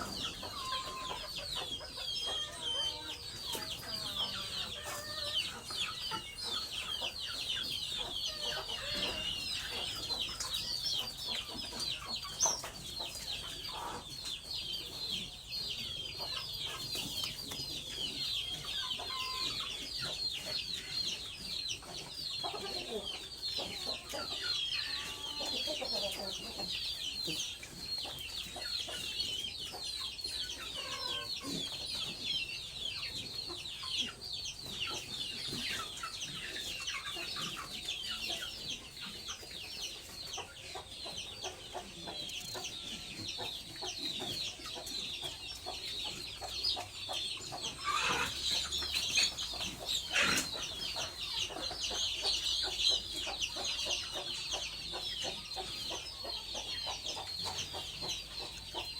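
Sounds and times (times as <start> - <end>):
loud chicken calls: 0.0 - 3.3, 47.6 - 48.8
chickens peeping and clucking: 0.0 - 58.9.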